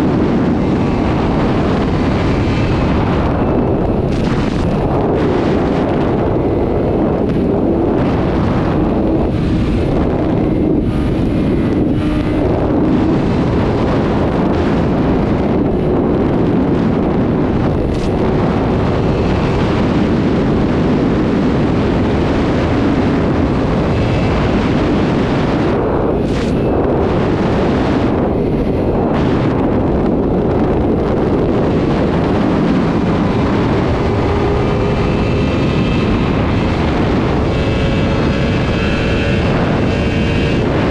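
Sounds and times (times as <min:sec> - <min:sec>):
motorcycle engine at speed: 0:00.0 - 0:40.9
wind rush on microphone: 0:00.0 - 0:40.9.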